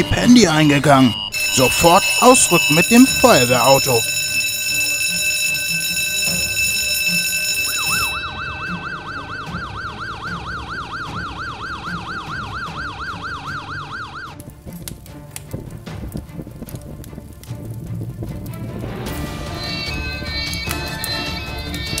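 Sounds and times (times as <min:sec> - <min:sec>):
alarm bell ringing: 0:00.0 - 0:14.2, 0:19.5 - 0:22.0
fire engine yelping siren: 0:01.3 - 0:14.5, 0:19.1 - 0:22.0.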